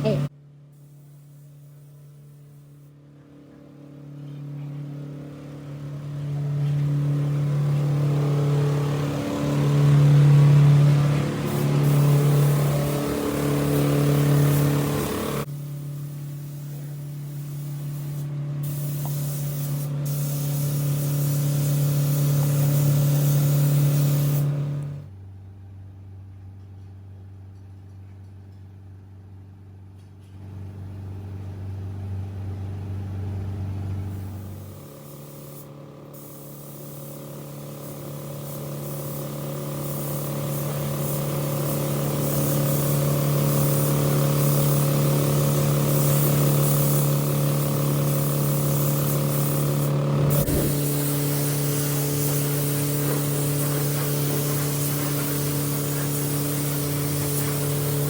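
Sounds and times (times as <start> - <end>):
low machine hum: 0.0 - 58.0
higher motor hum: 3.2 - 15.5, 50.0 - 51.3
spraying hiss: 7.9 - 24.5, 34.3 - 58.0.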